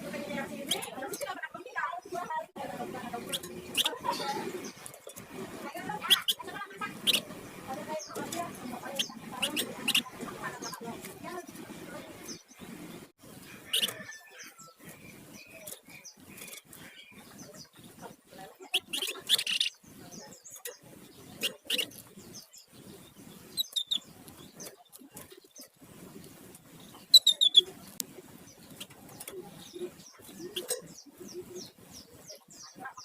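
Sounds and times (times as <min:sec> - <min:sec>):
songbird chirping: 0:00.0 - 0:33.0.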